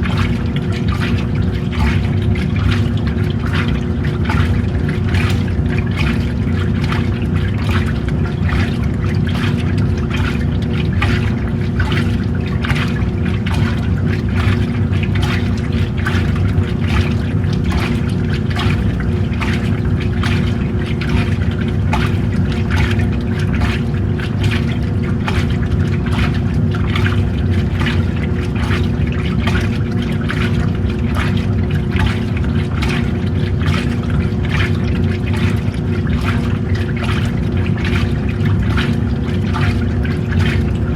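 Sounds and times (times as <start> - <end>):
washing machine motor hum: 0.0 - 40.9
water sloshing in washing machine: 0.0 - 40.9.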